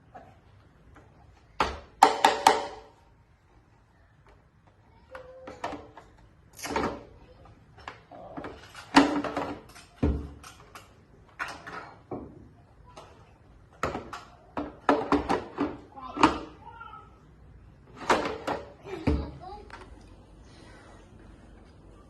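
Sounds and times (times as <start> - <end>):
sharp knocks and clatters: 0.9 - 3.0, 7.8 - 16.6.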